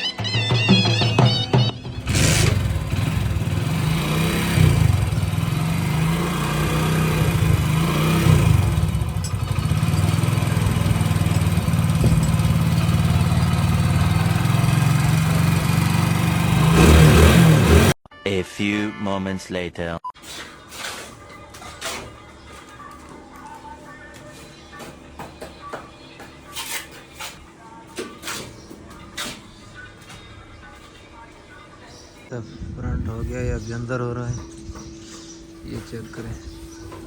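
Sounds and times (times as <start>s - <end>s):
motorcycle engine revving and idling: 1.2s - 18.0s.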